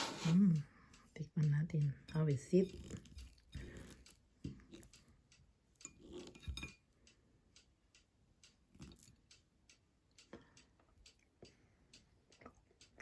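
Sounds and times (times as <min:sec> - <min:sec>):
cutlery clinking on plate: 0:06.2 - 0:06.8.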